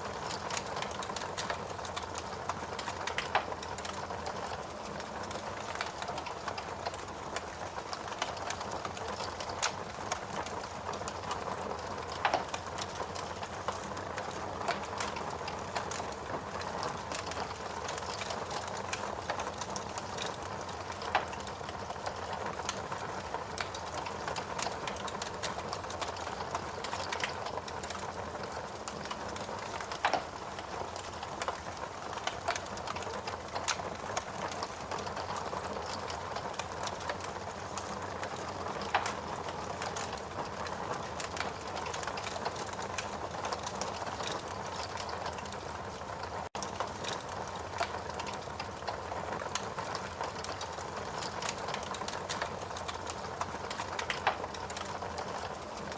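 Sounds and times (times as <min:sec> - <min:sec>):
wood fire crackling: 0:00.0 - 0:55.9
loud fire pops: 0:29.7 - 0:30.3.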